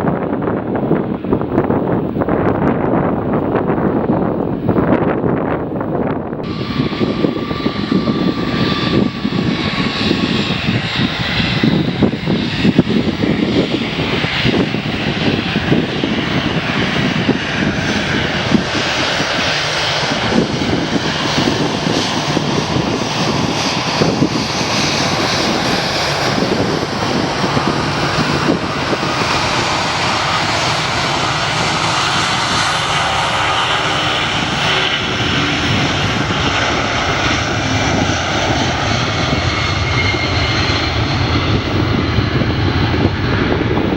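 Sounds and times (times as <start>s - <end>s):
jet engines roaring: 0.0s - 43.9s.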